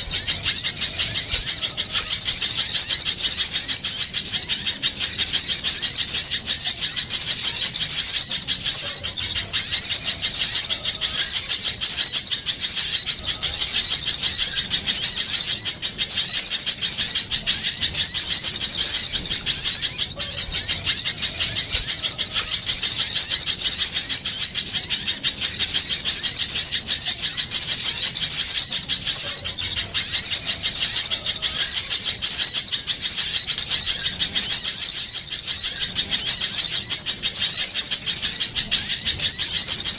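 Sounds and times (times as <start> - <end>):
small birds chattering and chirping: 0.0 - 39.9.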